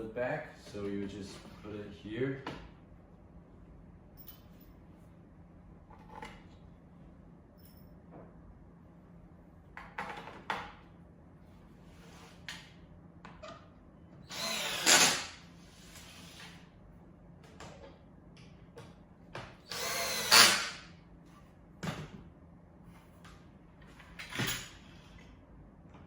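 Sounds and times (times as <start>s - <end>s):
power screwdriver driving screws: 14.3s - 15.3s, 19.7s - 20.8s.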